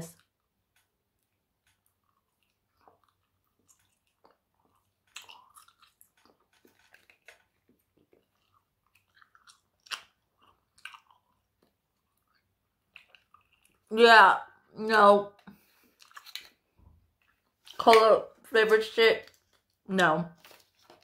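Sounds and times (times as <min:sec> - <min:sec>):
wet chewing and mouth smacks: 0:00.2 - 0:13.9, 0:15.4 - 0:17.8, 0:19.2 - 0:19.8.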